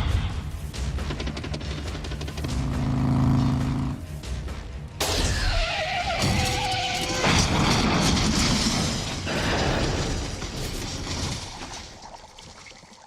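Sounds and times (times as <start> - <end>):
crash of metal and debris: 7.0 - 12.1.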